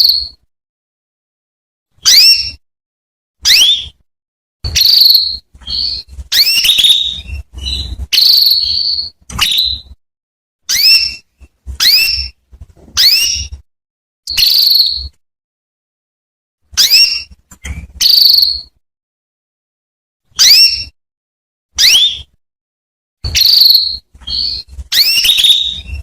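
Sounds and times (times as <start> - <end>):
canary chirping calls: 0.0 - 0.4, 2.0 - 2.6, 3.4 - 4.0, 4.6 - 10.0, 10.7 - 13.6, 14.3 - 15.1, 16.8 - 18.8, 20.4 - 21.0, 21.8 - 22.3, 23.2 - 26.0.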